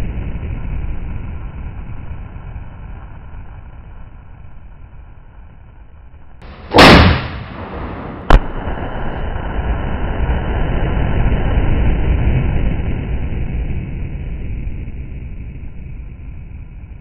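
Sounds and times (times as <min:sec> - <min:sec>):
steady low rumble: 0:00.0 - 0:17.0
sharp bang: 0:06.4 - 0:09.2
explosive blast: 0:06.4 - 0:12.4.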